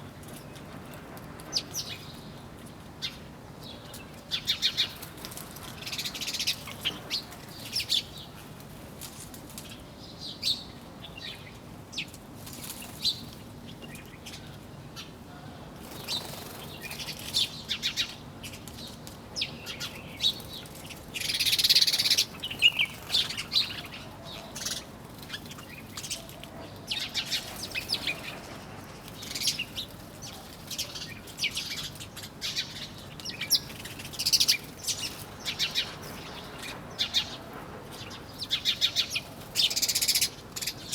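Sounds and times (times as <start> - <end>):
small birds chirping: 15.8 - 40.9.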